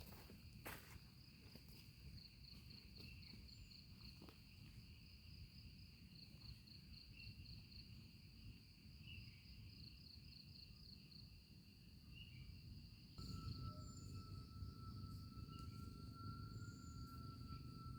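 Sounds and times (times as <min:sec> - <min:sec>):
insect chorus chirring: 0:12.2 - 0:17.9
low rumble: 0:13.2 - 0:17.9
pulsing insect trill: 0:13.2 - 0:17.9.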